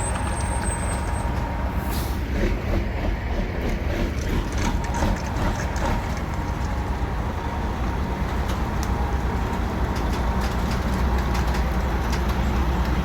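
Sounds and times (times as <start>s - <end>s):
diesel truck engine rumble: 0.0s - 13.0s
light rattles and clicks: 7.8s - 13.0s.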